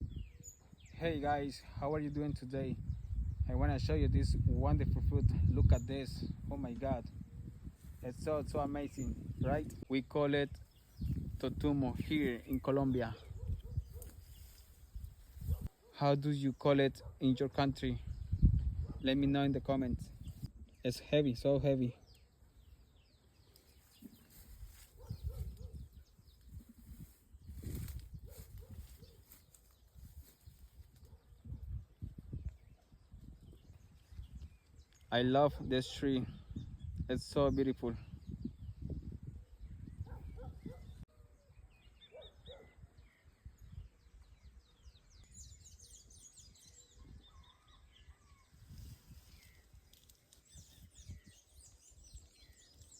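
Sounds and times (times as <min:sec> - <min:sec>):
small birds chirping: 0:00.0 - 0:52.9
high falling bird chirps: 0:41.4 - 0:52.9.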